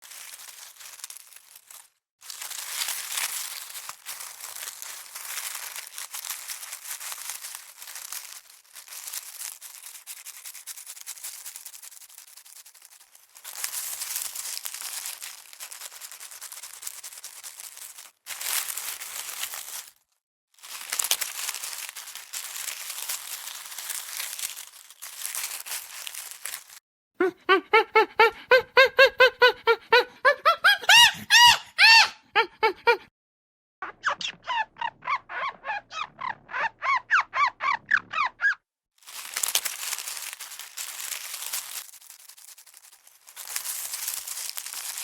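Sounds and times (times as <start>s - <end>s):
dry crinkling and rustling: 0.0s - 26.8s, 39.0s - 45.0s.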